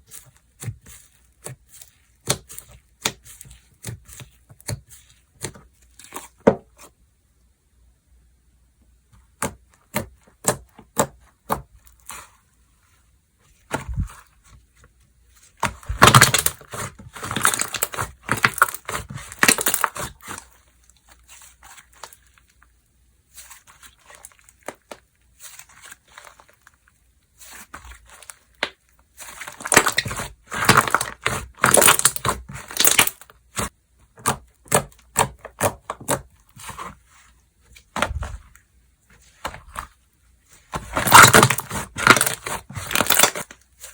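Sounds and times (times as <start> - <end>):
slime crackling and popping: 15.6 - 22.6, 27.4 - 36.8, 40.8 - 43.9.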